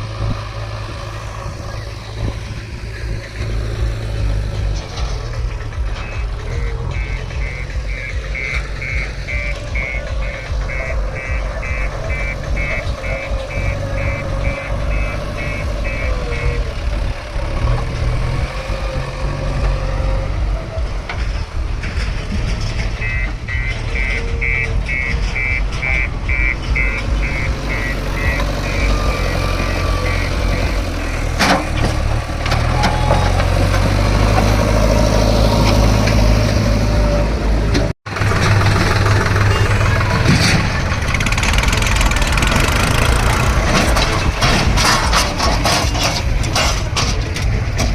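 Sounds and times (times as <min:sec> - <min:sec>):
diesel engines running heavily: 0:00.0 - 0:47.9
reversing alarm beeping: 0:05.5 - 0:16.9, 0:22.8 - 0:32.0.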